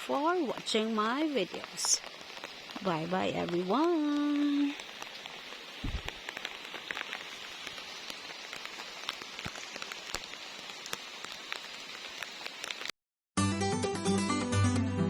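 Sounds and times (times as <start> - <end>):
raindrops striking close by: 0.0 - 12.9
steady rain falling: 0.0 - 12.9
low thud: 5.8 - 6.1.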